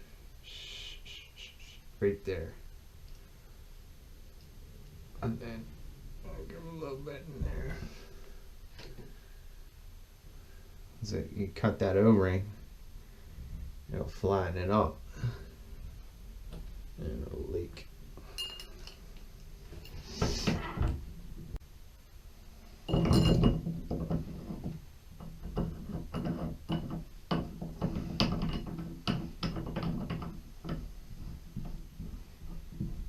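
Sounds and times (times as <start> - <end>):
tools clicking and knocking: 22.9 - 30.9.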